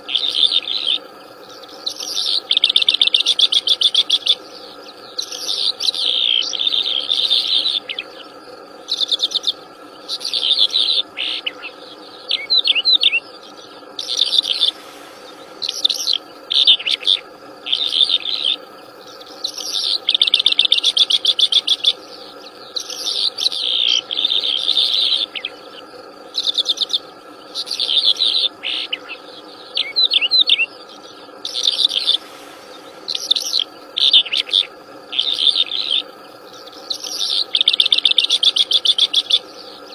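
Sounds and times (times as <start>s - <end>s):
insects droning: 0.0s - 39.9s
songbird singing: 0.0s - 39.9s.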